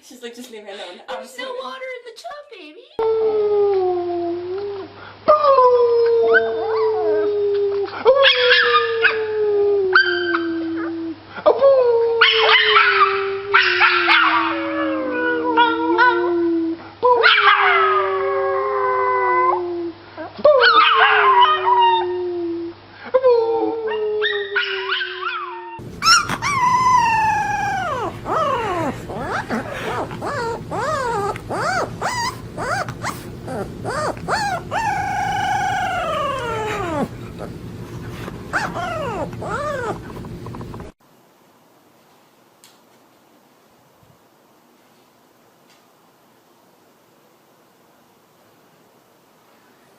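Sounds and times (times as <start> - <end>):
dog howling: 3.0 - 11.1, 11.8 - 19.8, 23.5 - 40.9
dog yelping and whining: 8.1 - 9.2, 24.2 - 41.0
second dog's high wavering howl: 8.2 - 11.1, 12.2 - 16.4, 23.6 - 37.1, 38.5 - 40.1.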